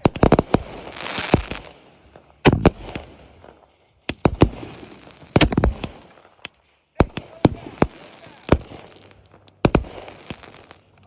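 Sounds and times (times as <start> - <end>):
fireworks bursting with bangs: 0.0 - 11.0
fireworks hissing: 0.2 - 1.7, 7.2 - 11.0.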